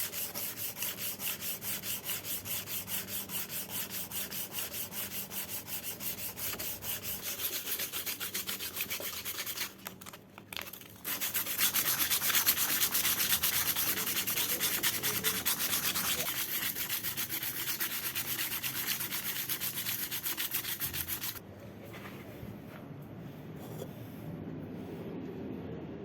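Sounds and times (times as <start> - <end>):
sandpaper rubbing: 0.0 - 9.8, 10.7 - 21.4.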